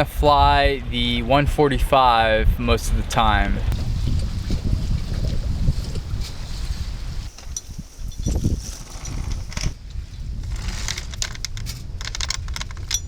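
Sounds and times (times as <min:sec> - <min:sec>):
wind buffeting microphone: 0:00.0 - 0:13.0
anchor chain rattling: 0:07.2 - 0:09.8, 0:10.4 - 0:13.0
metallic clicks: 0:10.4 - 0:13.0.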